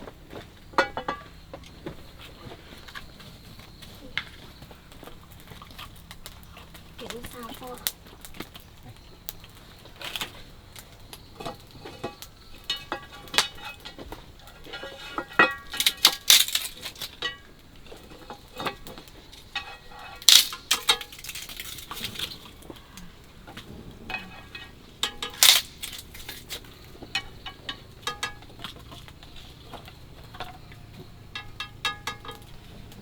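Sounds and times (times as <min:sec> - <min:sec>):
metal utensils clinking against pan: 0:00.8 - 0:01.5, 0:11.4 - 0:33.0.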